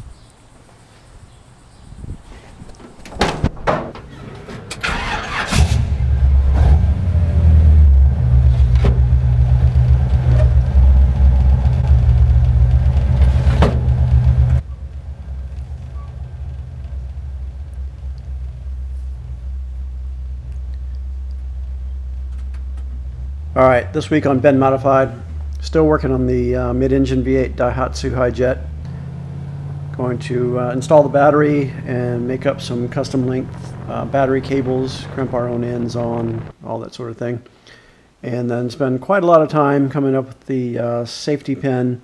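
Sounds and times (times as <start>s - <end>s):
engine knocks and clatter: 2.8s - 21.0s, 21.6s - 36.6s
engine running loud and low: 4.4s - 36.6s.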